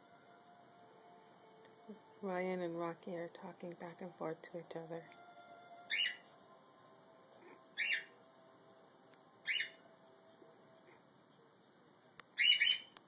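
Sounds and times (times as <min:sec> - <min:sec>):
bird squawking: 0:05.9 - 0:06.2, 0:07.8 - 0:08.1, 0:09.4 - 0:09.8, 0:12.4 - 0:13.0.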